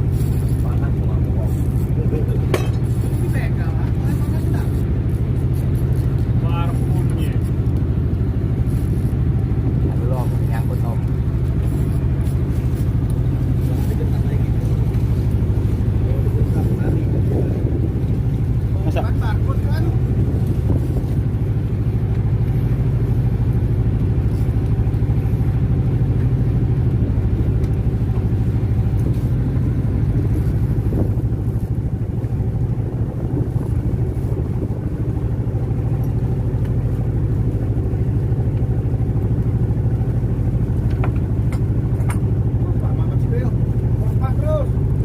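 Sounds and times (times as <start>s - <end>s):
boat engine droning: 0.0s - 45.0s.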